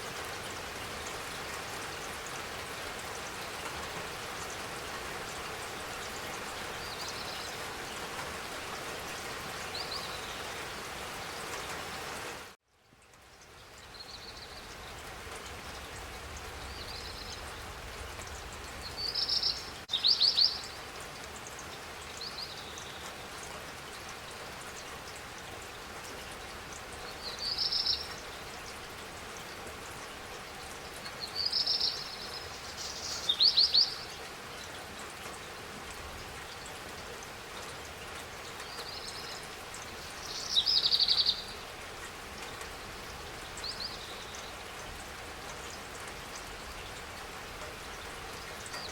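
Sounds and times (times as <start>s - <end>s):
steady rain falling: 0.0s - 48.9s
songbird singing with trills: 40.3s - 41.6s.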